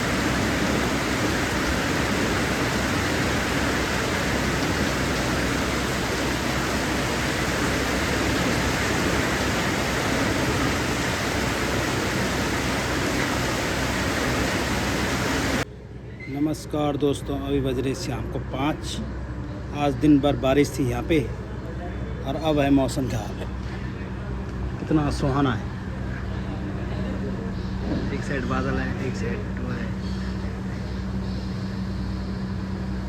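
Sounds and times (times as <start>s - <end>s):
heavy rain pouring: 0.0s - 15.6s.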